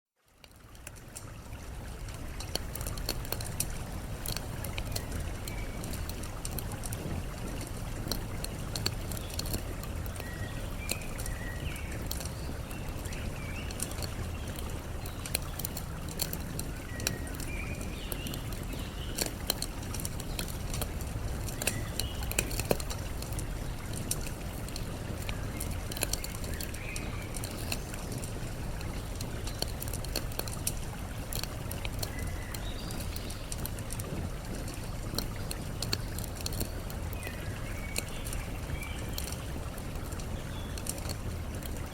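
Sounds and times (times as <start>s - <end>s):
campfire crackling: 0.1s - 41.9s
flowing water: 0.2s - 41.9s.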